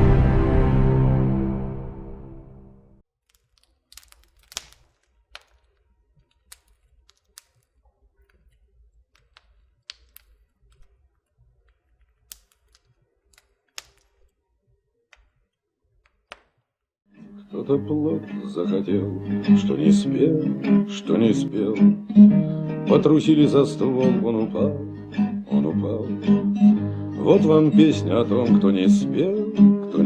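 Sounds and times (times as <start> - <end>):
music: 0.0 - 3.0, 17.1 - 30.0
faint small clicks and taps: 3.2 - 14.4.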